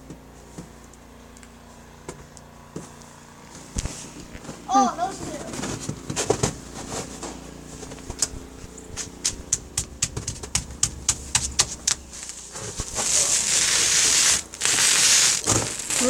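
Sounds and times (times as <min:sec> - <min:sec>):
loud rustling: 0:03.5 - 0:16.0.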